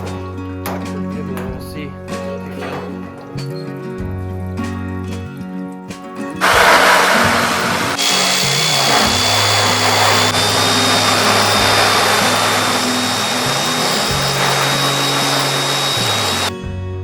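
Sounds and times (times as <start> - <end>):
power nibbler grinding sheet metal: 6.4 - 16.5
steady high whine: 6.4 - 16.5.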